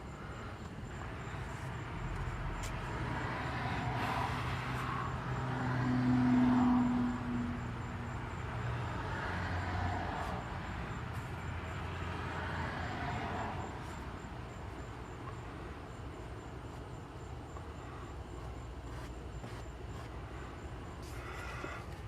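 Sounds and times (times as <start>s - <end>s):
vehicle passing: 1.4s - 14.5s.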